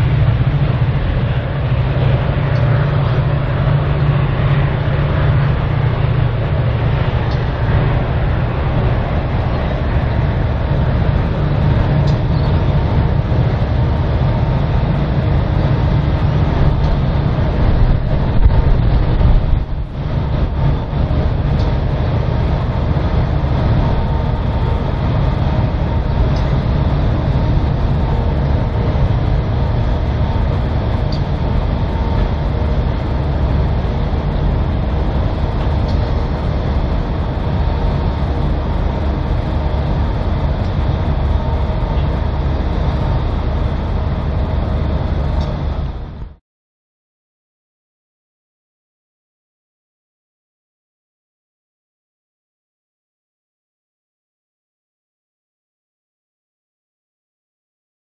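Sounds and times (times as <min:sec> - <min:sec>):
steel wheels rumbling on rail: 0:00.0 - 0:46.4.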